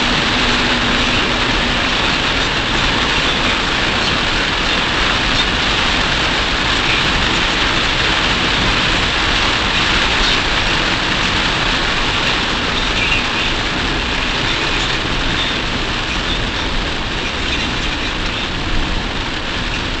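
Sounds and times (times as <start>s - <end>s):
rain on car roof: 0.0s - 20.0s
tyres on wet road: 0.0s - 20.0s.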